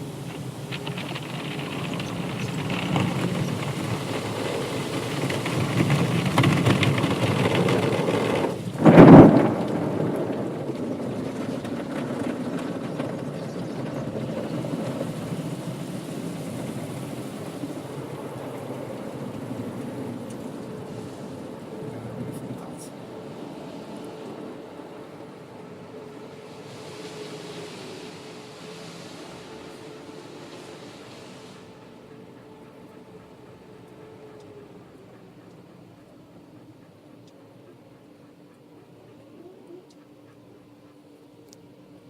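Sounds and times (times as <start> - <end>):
car wash water spraying: 0.0 - 11.7, 14.0 - 35.9.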